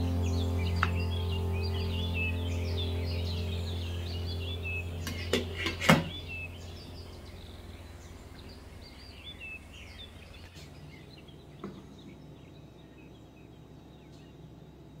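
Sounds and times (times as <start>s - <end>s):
faint birds chirping: 0.0s - 15.0s
low steady hum: 0.0s - 15.0s.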